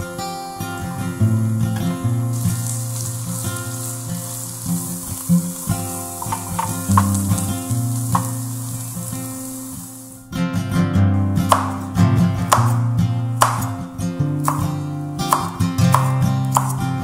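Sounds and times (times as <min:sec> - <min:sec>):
food sizzling in oil: 0:00.0 - 0:10.4
sharp ticks: 0:00.5 - 0:10.2
spatula stirring in pan: 0:00.8 - 0:10.2.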